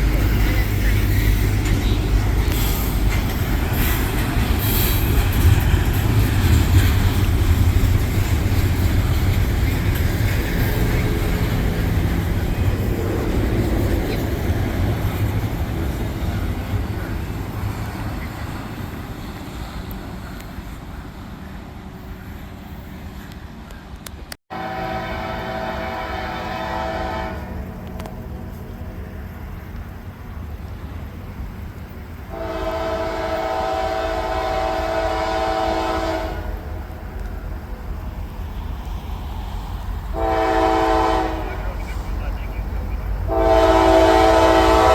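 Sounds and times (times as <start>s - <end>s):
train rumble: 0.0s - 44.9s
locomotive air horn blasts: 24.5s - 28.0s, 32.3s - 36.7s, 40.2s - 42.0s, 43.3s - 44.9s.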